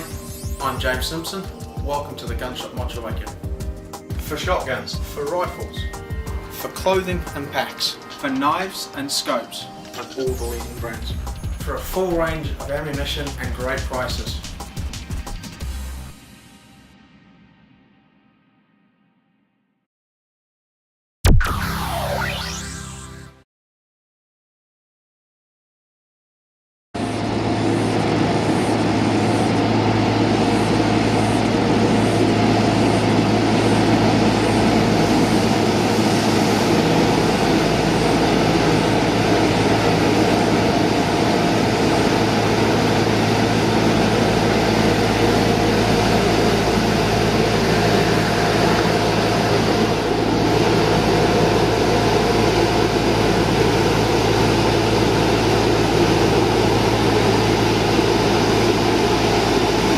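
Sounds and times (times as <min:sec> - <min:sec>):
heavy machine humming: 0:27.0 - 0:59.9.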